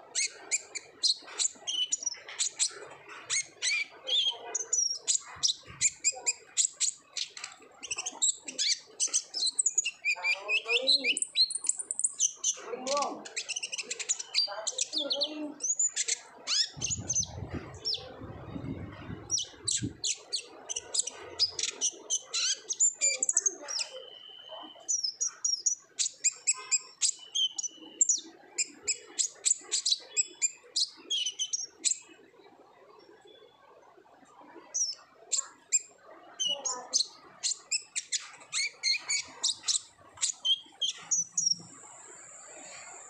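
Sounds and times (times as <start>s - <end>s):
bird chirps and trills: 0.0s - 32.3s, 34.3s - 43.0s
low rumble: 16.8s - 20.0s.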